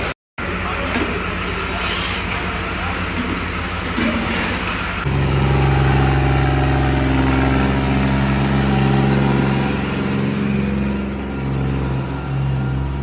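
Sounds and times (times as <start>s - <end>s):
vehicle engine running: 5.0s - 13.0s.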